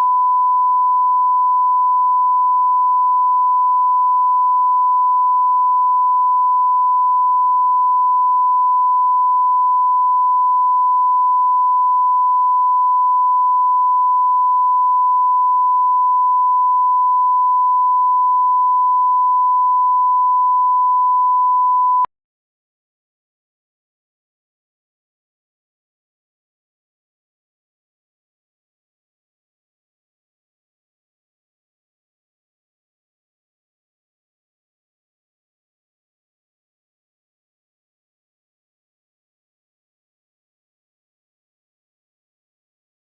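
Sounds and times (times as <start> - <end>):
pure test tone: 0.0 - 22.1.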